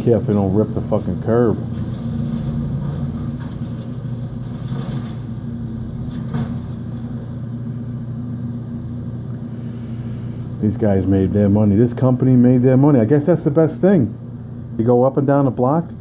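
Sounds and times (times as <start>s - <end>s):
cutter wheel grinding stump: 0.0s - 7.4s
stump grinder engine running: 0.0s - 12.6s.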